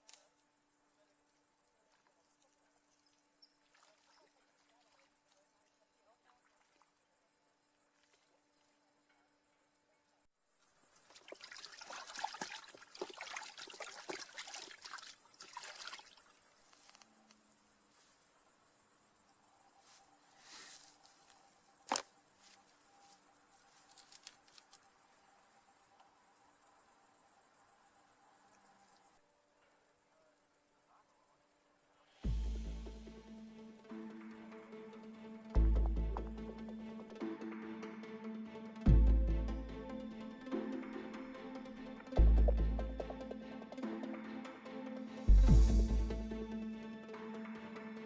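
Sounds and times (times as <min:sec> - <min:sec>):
crickets chirring: 0:00.0 - 0:37.8.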